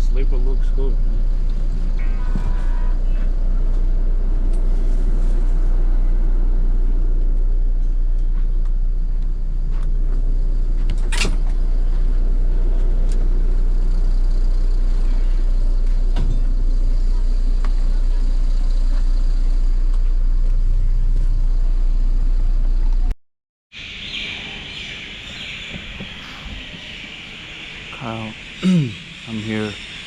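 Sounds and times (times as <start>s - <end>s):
vehicle rumble from inside: 0.0s - 23.2s.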